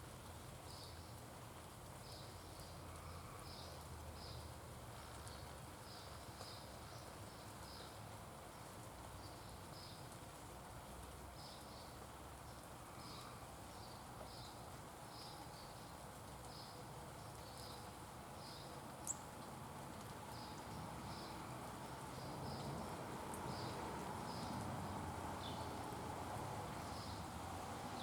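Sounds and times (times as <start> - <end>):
faint outdoor background noise: 0.0 - 28.0
small bird chirping: 13.0 - 19.3.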